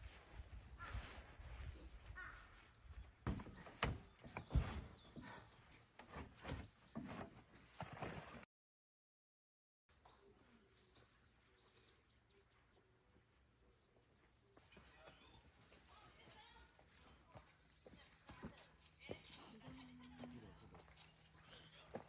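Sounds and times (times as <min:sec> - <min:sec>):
bird chirping: 0:03.3 - 0:08.4, 0:09.9 - 0:14.7.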